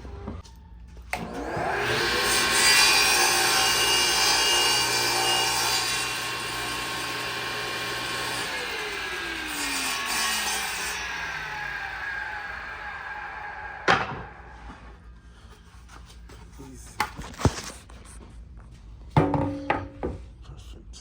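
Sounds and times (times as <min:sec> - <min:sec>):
power saw cutting wood: 0:01.1 - 0:14.8.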